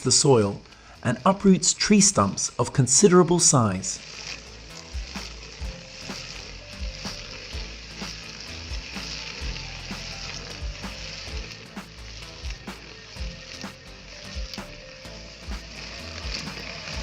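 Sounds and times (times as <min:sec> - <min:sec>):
steady hissing noise: 0:00.0 - 0:17.0.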